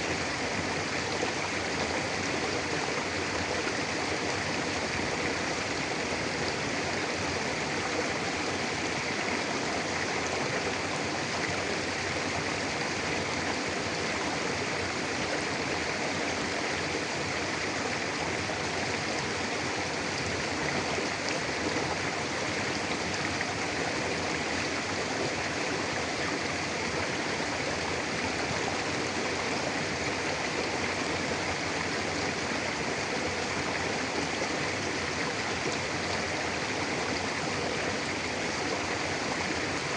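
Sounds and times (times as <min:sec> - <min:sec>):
river flowing over rocks: 0:00.0 - 0:39.9.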